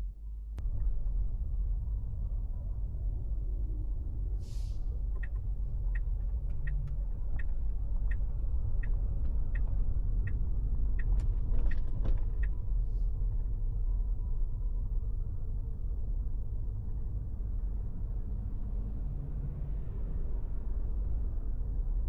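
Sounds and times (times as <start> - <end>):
car road and engine rumble: 0.0 - 22.0
turn signal ticking: 5.2 - 11.3.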